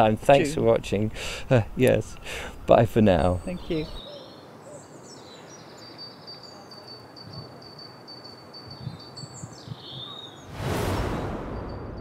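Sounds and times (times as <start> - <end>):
small bird calling: 2.0 - 10.5
loud rushing noise: 10.5 - 12.0.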